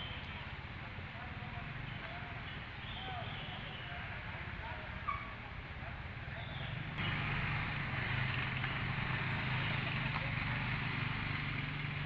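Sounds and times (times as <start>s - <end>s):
low engine hum: 6.7s - 12.0s.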